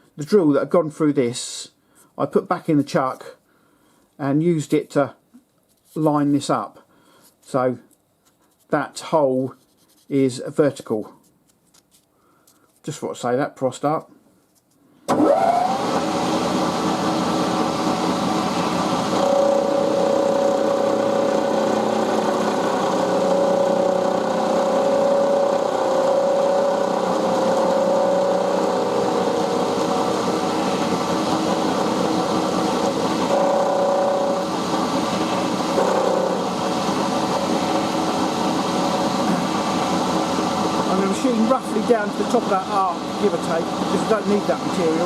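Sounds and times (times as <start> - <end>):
milling machine motor hum: 15.1 - 45.0
cutter tone cutting metal: 17.6 - 39.4.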